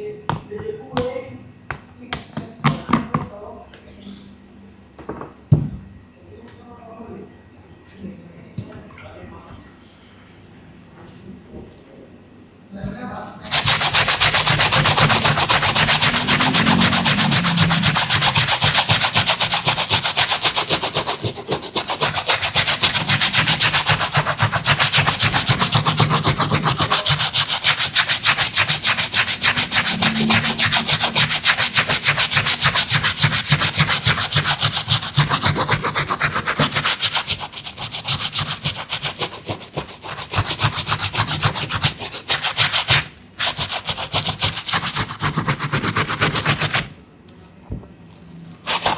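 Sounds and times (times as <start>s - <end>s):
brush scrubbing a sneaker: 13.1s - 47.0s, 48.6s - 48.9s.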